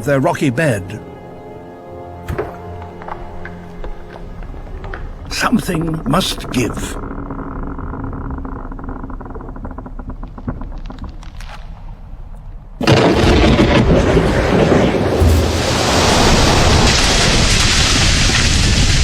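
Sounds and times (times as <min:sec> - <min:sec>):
glacier ice cracking: 0:12.8 - 0:19.0
ice collapsing with rumbling crash: 0:12.8 - 0:19.0.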